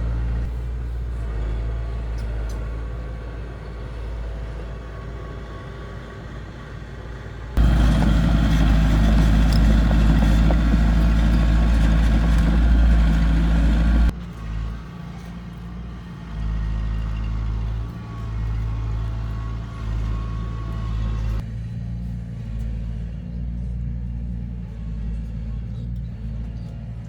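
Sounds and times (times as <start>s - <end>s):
heavy diesel engine rumbling: 0.0s - 21.5s.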